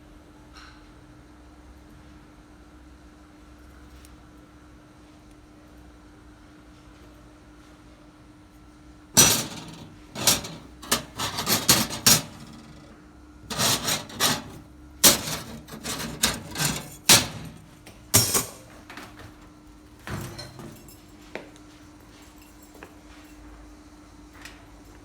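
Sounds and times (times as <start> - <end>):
hard objects knocking and clattering: 9.2 - 12.9, 13.5 - 19.4
steady machine hum: 9.2 - 18.8.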